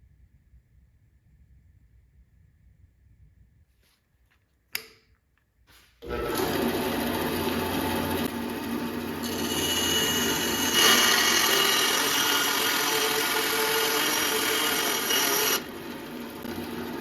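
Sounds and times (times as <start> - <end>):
band saw cutting wood: 6.0 - 17.0.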